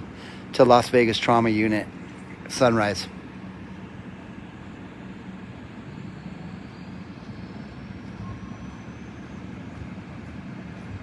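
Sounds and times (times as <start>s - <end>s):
helicopter turbine engines starting: 0.0s - 11.0s
high whine rising in pitch: 1.4s - 10.3s.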